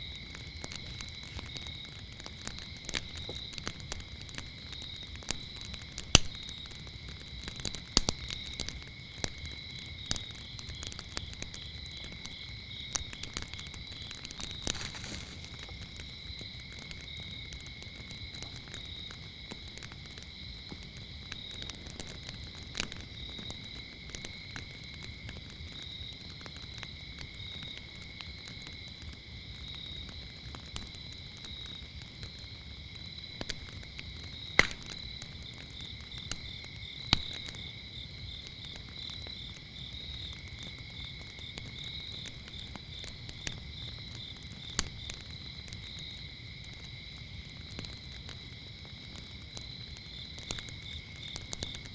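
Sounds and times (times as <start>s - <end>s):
insect pulsed chirp: 0.0s - 10.7s, 42.9s - 51.9s
crackling wood fire: 0.0s - 51.9s
crickets trilling: 0.0s - 51.9s.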